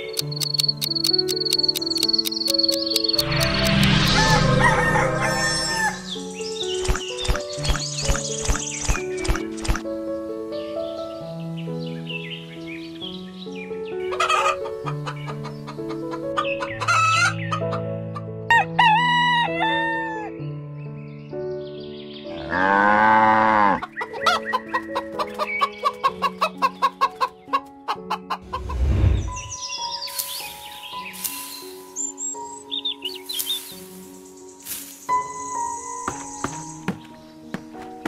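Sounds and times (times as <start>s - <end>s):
background music with held notes: 0.0s - 38.0s
loud low swell: 3.2s - 6.3s
rooster crowing: 4.2s - 6.1s
hens clucking: 24.0s - 28.8s.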